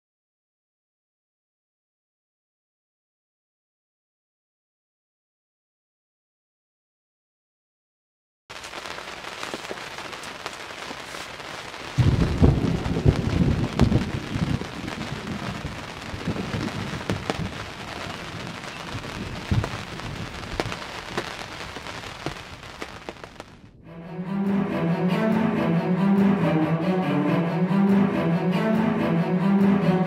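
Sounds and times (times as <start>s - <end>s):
steady rain: 8.5s - 23.6s
thunder rumble: 11.8s - 23.9s.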